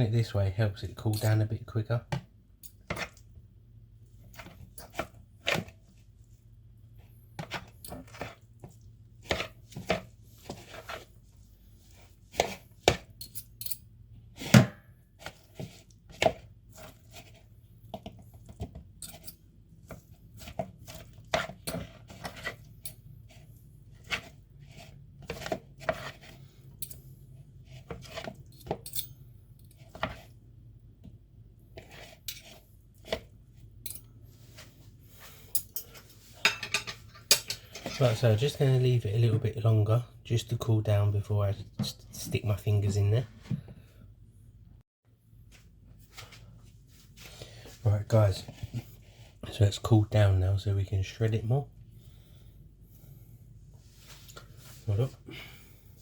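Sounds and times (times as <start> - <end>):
forks scraping a bowl: 19.0 - 27.1, 31.8 - 33.3.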